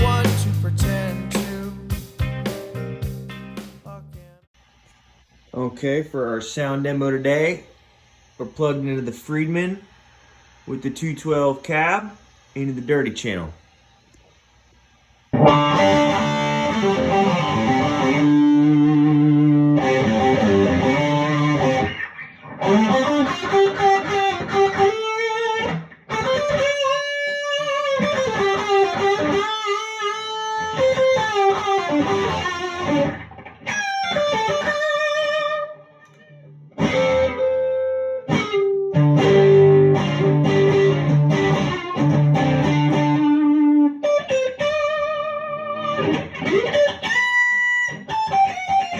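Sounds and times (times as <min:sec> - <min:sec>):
distorted electric guitar: 0:00.0 - 0:04.5, 0:15.3 - 0:48.9.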